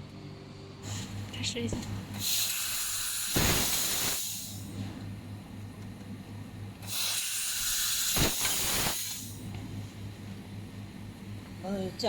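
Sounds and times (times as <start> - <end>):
low electrical hum: 0.0 - 12.0
laser machine hissing: 2.1 - 4.7, 6.8 - 9.5.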